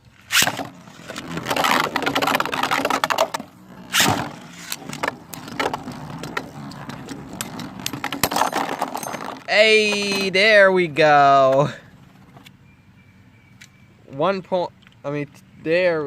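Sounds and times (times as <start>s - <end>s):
launcher ripcord zip: 0.2s - 10.4s.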